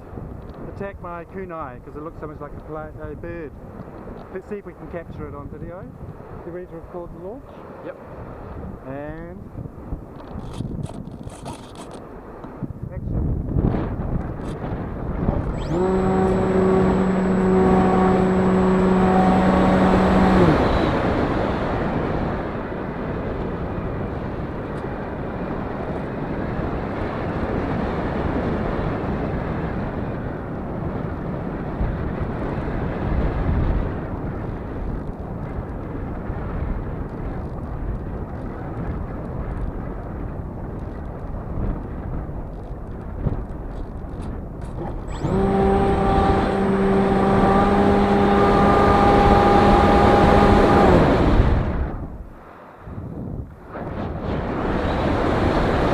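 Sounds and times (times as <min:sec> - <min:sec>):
wind noise on microphone: 0:00.0 - 0:55.9
model plane motor whine: 0:14.3 - 0:22.5, 0:43.7 - 0:52.2, 0:54.4 - 0:55.9.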